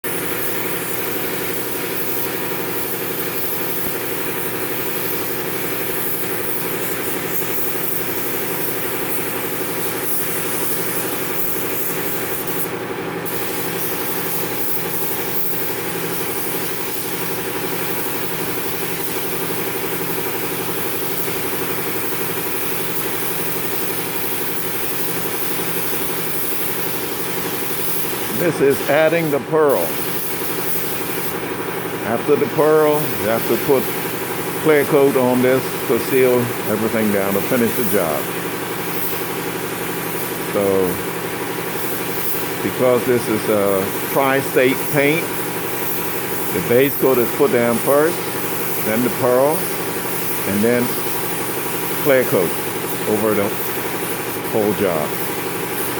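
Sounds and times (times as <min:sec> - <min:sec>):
spray machine humming: 0:00.0 - 0:55.9
hiss of spraying air: 0:00.1 - 0:55.9.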